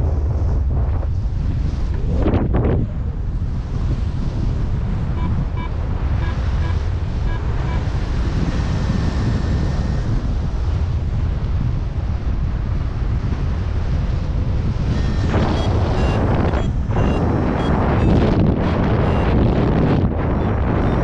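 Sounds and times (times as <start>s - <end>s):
wind buffeting microphone: 0.0s - 21.0s
short high electronic beeps: 5.2s - 7.9s, 14.9s - 18.2s, 19.0s - 19.4s.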